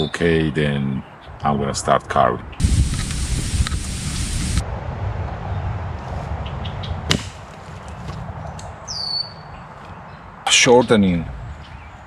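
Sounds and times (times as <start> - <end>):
wood snapping: 7.1 - 8.8
bird whistle: 8.9 - 9.6.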